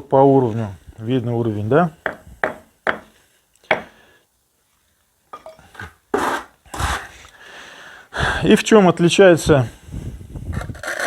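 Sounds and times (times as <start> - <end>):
sharp knocks on masonry: 2.0 - 3.1, 3.7 - 4.0
brick scraping on mortar: 5.4 - 7.1, 10.5 - 11.0.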